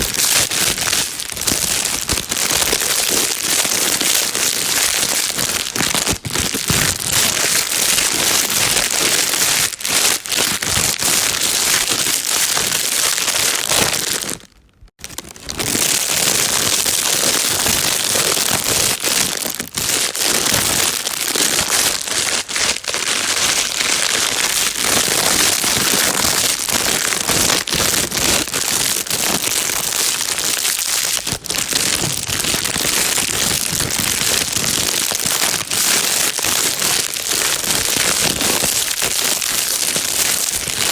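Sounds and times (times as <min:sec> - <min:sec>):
plastic bag crinkling: 0:00.0 - 0:40.9.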